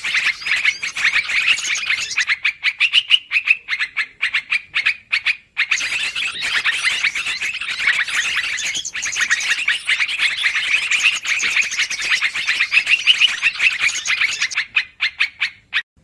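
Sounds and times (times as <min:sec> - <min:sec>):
bulbuls chattering: 0:00.0 - 0:02.4, 0:05.7 - 0:14.6.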